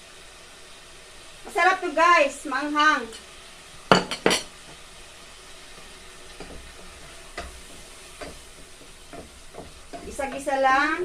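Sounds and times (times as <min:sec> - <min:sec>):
food sizzling in a pan: 0:00.0 - 0:11.0
utensil knocking against pan: 0:03.9 - 0:04.5, 0:07.4 - 0:10.5.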